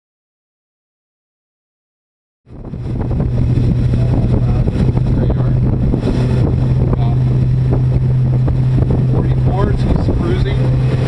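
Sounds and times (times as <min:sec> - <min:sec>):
outboard engines droning: 0:02.5 - 0:11.0
wind buffeting microphone: 0:02.5 - 0:11.0.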